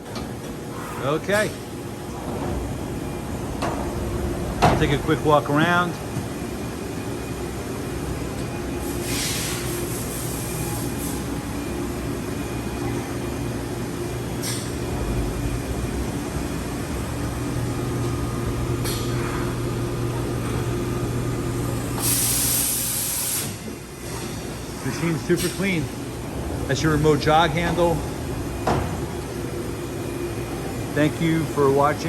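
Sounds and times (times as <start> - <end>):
machine humming: 1.4 - 9.0, 10.6 - 32.0
air hissing: 8.8 - 11.2, 22.0 - 24.6.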